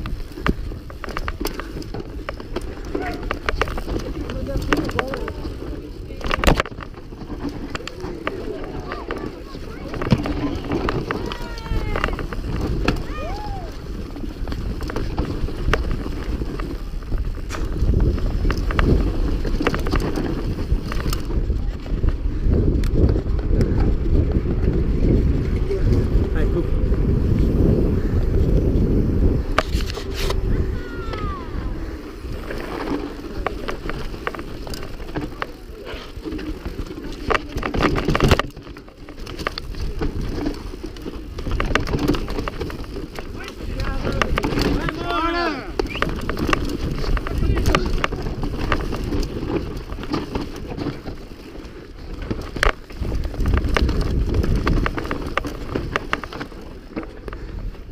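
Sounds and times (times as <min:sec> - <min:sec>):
bike clicks and rattles: 0:00.0 - 0:57.9
wind rumbling on microphone: 0:00.0 - 0:57.9
knocks from rocks and bumps: 0:14.4 - 0:21.5.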